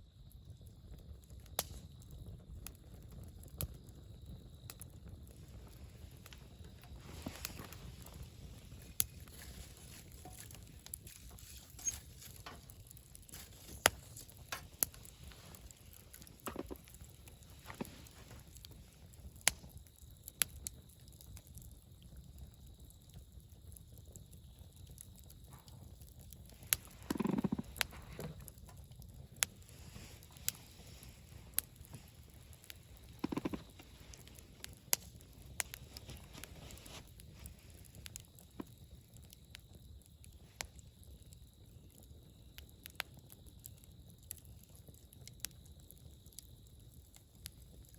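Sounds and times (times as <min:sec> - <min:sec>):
campfire crackling and popping: 0:00.0 - 0:47.9
flames rushing: 0:00.7 - 0:20.8, 0:24.3 - 0:44.6.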